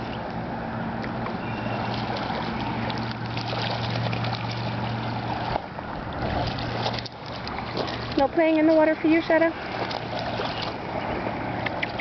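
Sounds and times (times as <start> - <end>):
low motor hum: 0.0 - 12.0
water lapping and splashing: 0.0 - 12.0.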